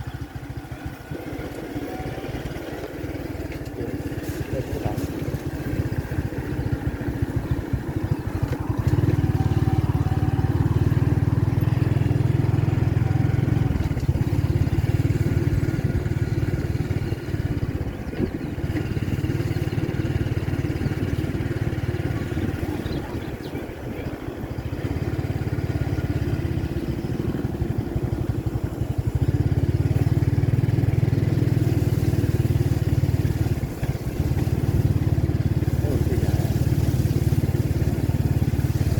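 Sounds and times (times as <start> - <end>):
vehicle engine rumbling: 0.0 - 38.9.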